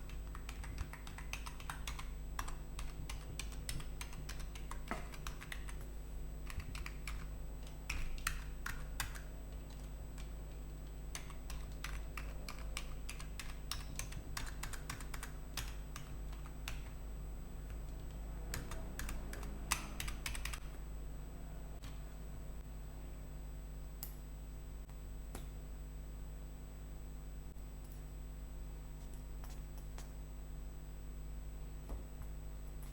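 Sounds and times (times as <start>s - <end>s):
computer keyboard typing: 0.0s - 17.0s, 17.7s - 20.6s.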